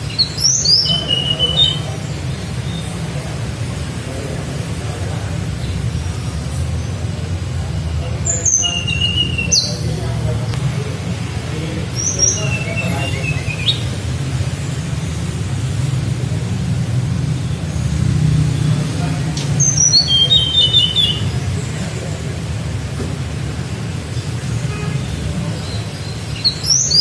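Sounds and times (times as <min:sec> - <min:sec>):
bird singing whistled phrases: 0:00.1 - 0:01.9, 0:08.3 - 0:09.8, 0:12.0 - 0:13.9, 0:19.6 - 0:21.4, 0:26.4 - 0:27.0.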